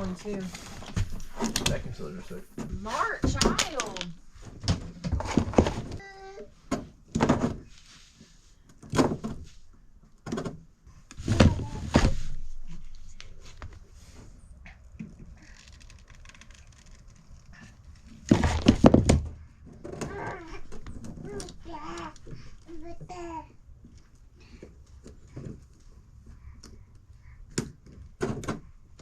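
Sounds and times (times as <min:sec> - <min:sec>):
knocks and thumps in a room: 0:00.0 - 0:06.1, 0:06.7 - 0:07.8, 0:10.2 - 0:14.3, 0:18.2 - 0:21.4.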